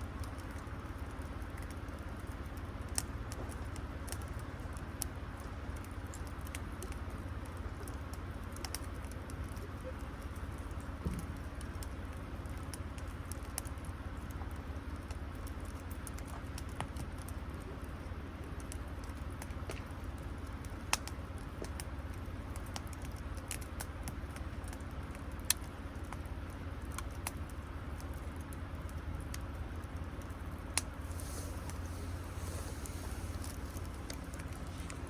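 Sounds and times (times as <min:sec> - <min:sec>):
campfire crackling: 0:00.0 - 0:35.0
low rumble: 0:31.0 - 0:35.0.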